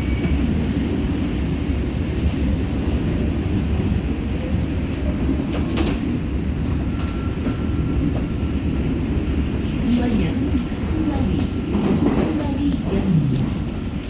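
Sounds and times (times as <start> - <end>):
subway train rumbling: 0.0 - 14.0
train wheels clacking: 2.1 - 14.0.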